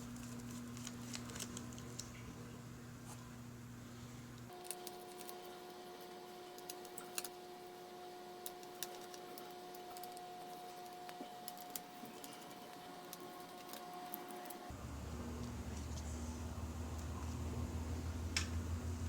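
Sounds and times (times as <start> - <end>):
faint steady hum: 0.0 - 19.0
small parts clicking and tapping: 8.4 - 14.6.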